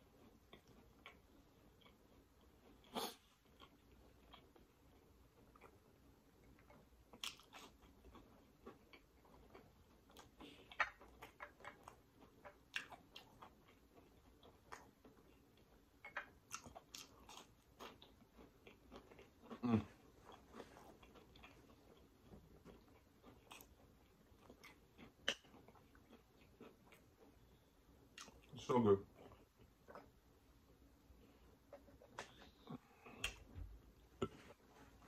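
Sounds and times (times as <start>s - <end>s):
wet mouth clicks: 32.0s - 33.5s.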